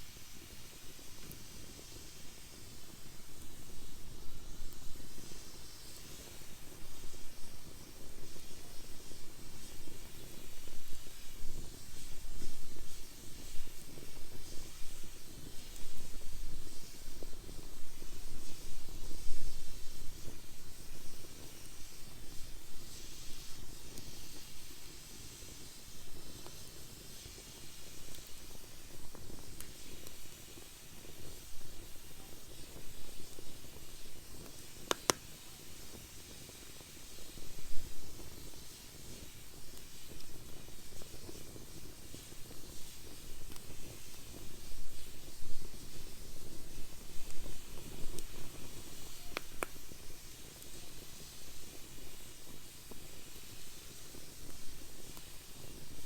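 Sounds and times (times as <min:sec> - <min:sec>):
fire crackling and popping: 0:00.0 - 0:56.0
wood fire burning: 0:00.0 - 0:56.0.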